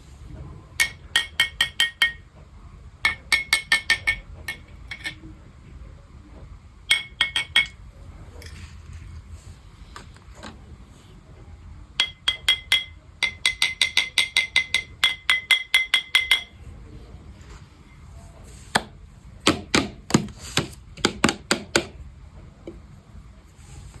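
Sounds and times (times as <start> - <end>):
fast ringing taps on hard object: 12.0 - 16.5.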